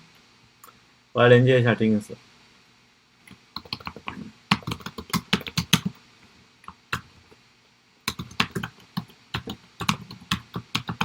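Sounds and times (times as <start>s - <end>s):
typing on computer keyboard: 3.3s - 6.0s, 8.1s - 11.0s.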